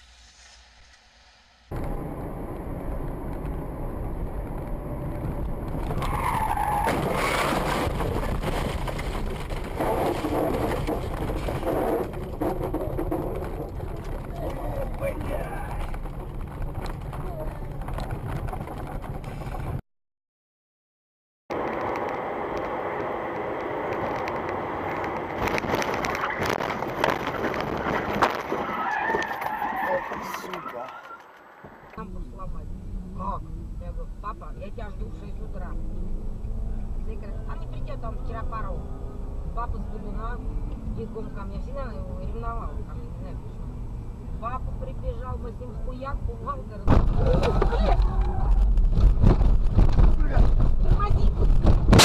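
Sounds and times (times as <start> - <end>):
car road and engine noise: 0.0 - 19.8, 21.5 - 52.0
tyres squealing: 28.4 - 31.4.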